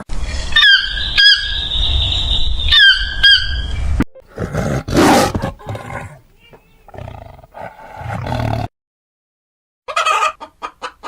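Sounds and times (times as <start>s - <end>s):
cockatoo squawking: 4.9s - 6.1s.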